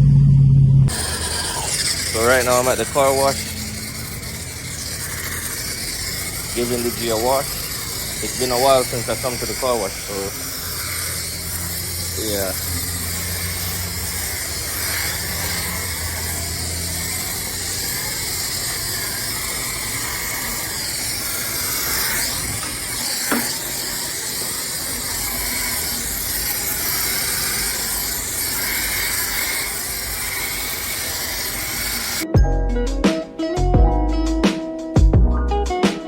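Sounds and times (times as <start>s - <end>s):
low hum: 0.0s - 6.6s
pressure washer spraying water: 0.9s - 32.3s.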